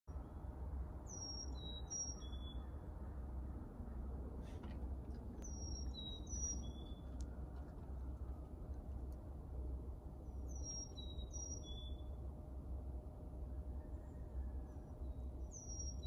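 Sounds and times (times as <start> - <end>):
steady low rumble: 0.1 - 16.0
songbird whistling song: 1.0 - 2.8, 5.4 - 7.4, 10.2 - 12.2, 13.5 - 16.0.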